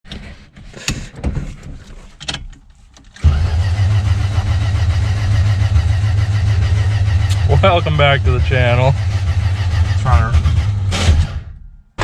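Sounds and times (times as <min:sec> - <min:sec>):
car engine running: 0:03.2 - 0:11.6.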